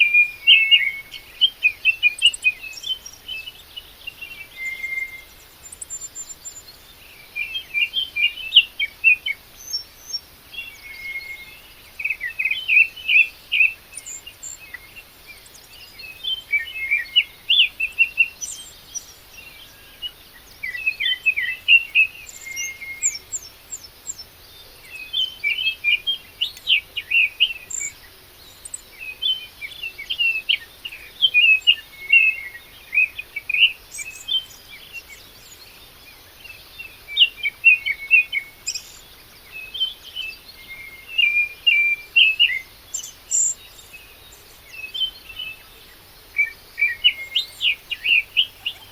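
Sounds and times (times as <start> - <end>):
songbird chirping: 46.8 - 48.9.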